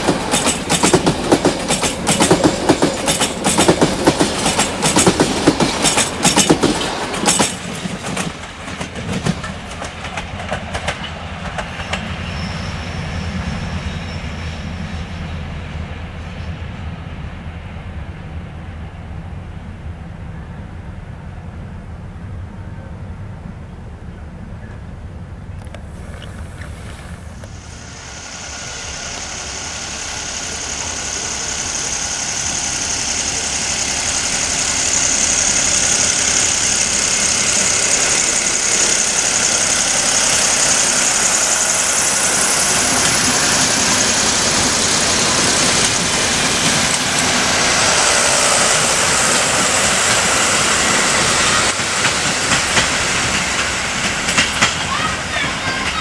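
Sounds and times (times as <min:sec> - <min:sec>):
wheels clacking over rail joints: 0:00.0 - 0:12.3, 0:28.3 - 0:56.0
train wheels rushing on rails: 0:00.0 - 0:21.3, 0:25.5 - 0:56.0.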